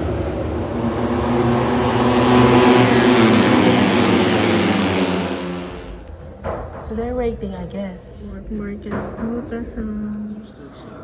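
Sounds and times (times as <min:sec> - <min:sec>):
racing motorcycle engines: 0:00.0 - 0:06.3.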